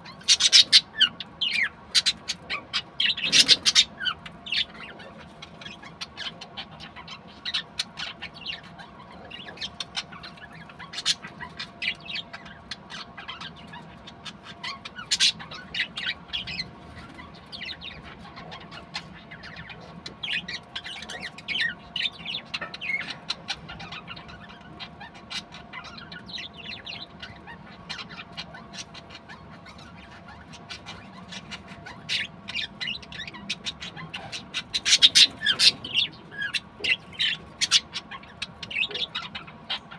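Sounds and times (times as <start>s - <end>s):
budgerigars chirping: 0.0s - 39.9s.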